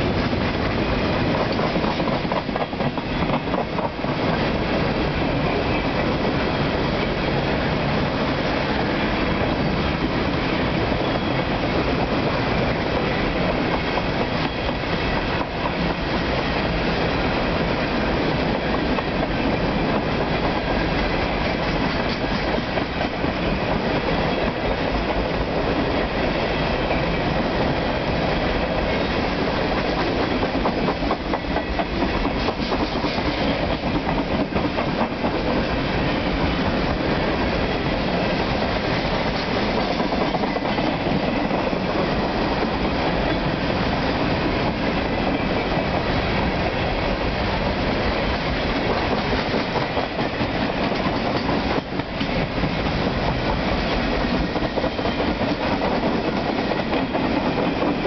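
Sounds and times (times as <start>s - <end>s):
freight train rumbling past: 0.0s - 58.0s
wheels clicking over rail joints: 18.4s - 25.4s.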